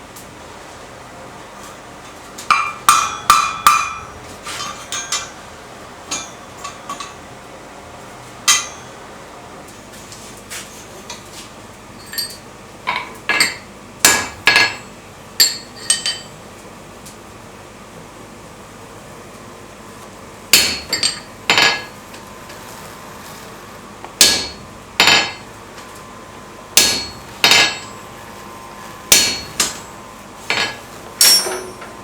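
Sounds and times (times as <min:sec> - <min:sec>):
hammer ringing on anvil: 0:02.5 - 0:04.1, 0:06.1 - 0:06.7, 0:08.5 - 0:09.0, 0:20.6 - 0:22.0, 0:24.2 - 0:25.4, 0:26.8 - 0:28.0, 0:29.1 - 0:29.9, 0:30.5 - 0:32.0.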